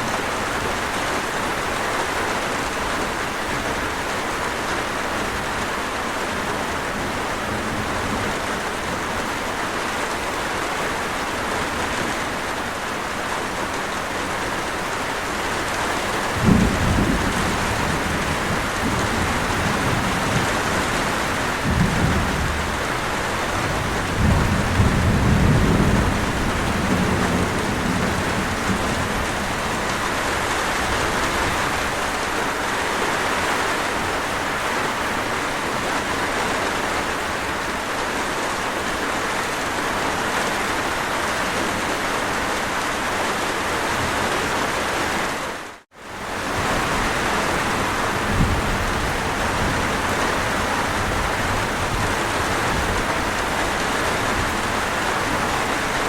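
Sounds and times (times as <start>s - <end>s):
heavy rainfall: 0.0s - 56.0s
thunder rumbling: 15.6s - 32.2s, 46.3s - 56.0s.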